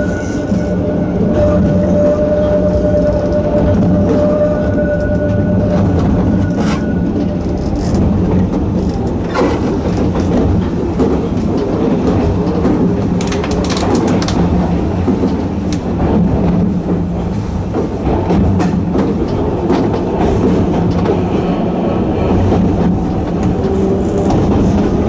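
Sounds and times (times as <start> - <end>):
electric train running on track: 0.0 - 25.0
wheels clicking over rail joints: 6.5 - 17.1.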